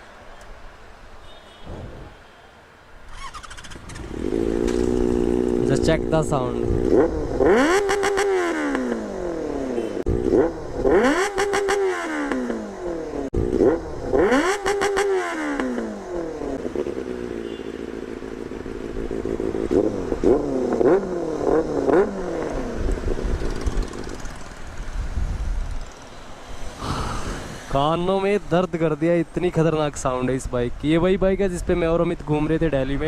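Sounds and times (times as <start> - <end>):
motorcycle engine revving: 3.1 - 25.0.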